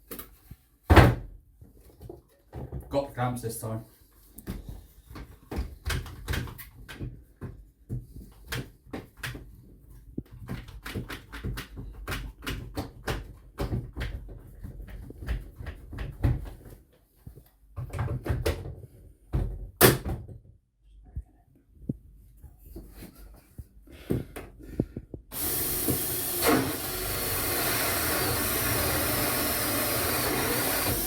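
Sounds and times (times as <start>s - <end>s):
knocks and clicks of clamps: 25.3s - 31.0s.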